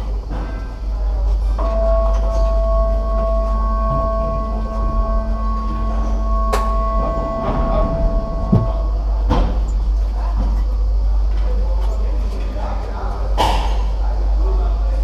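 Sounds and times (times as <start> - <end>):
high multi-pitched tone: 7.6 - 9.0.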